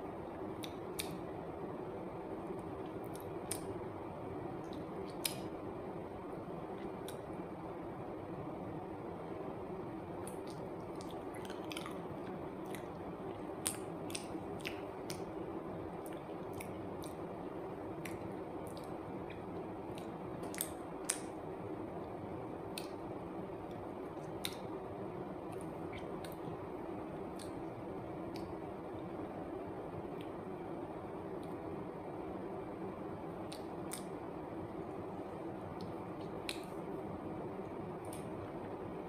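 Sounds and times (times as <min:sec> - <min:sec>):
steady background hum: 0:00.0 - 0:39.0
wet mouth clicks: 0:00.6 - 0:01.2, 0:10.2 - 0:12.0, 0:13.6 - 0:15.3, 0:16.0 - 0:17.2, 0:24.2 - 0:24.7, 0:27.3 - 0:27.6, 0:33.5 - 0:34.2, 0:35.8 - 0:36.8
person chewing banana: 0:10.2 - 0:15.2, 0:16.0 - 0:17.2.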